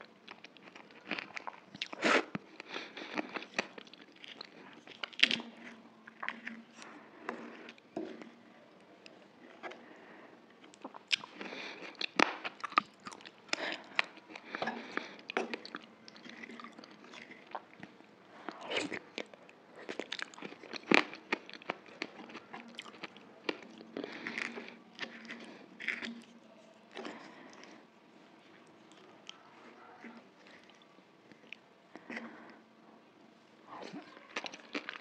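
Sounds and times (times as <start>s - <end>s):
crunching and chewing crisp food: 0.0s - 35.0s.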